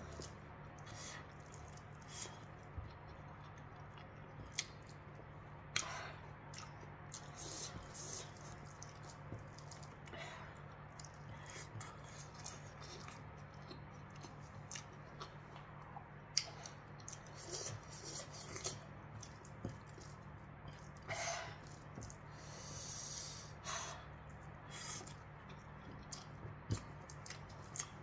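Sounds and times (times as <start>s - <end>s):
person chewing food: 0.0s - 28.0s
steady low hum: 0.0s - 28.0s.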